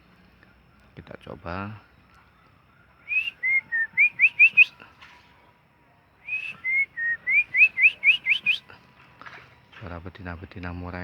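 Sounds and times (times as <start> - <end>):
person whistling bird call: 3.1 - 4.8, 6.2 - 8.7.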